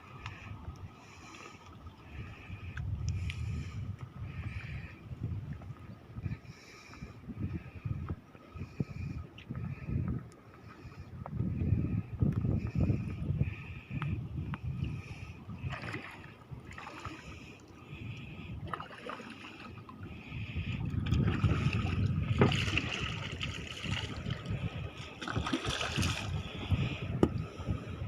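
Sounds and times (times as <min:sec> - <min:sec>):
low rumble of wind: 0:00.0 - 0:28.0
water splashing against boat hull: 0:15.6 - 0:17.5, 0:18.6 - 0:20.0, 0:20.8 - 0:27.4.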